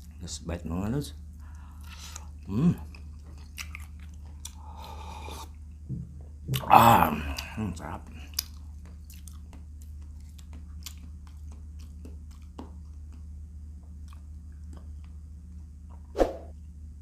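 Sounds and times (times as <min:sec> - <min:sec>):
chewing shrimp: 0:01.2 - 0:05.8, 0:06.5 - 0:16.0
low hum: 0:11.5 - 0:17.0.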